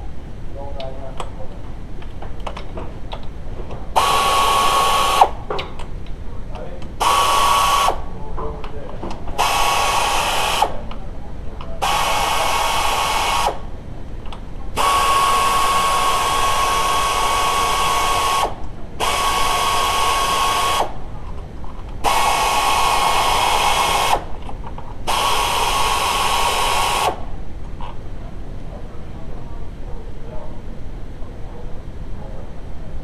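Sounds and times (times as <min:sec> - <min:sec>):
power tool whining: 0:04.0 - 0:05.4, 0:07.0 - 0:08.0, 0:09.4 - 0:10.8, 0:11.8 - 0:13.6, 0:14.8 - 0:21.0, 0:22.0 - 0:24.3, 0:25.0 - 0:27.3.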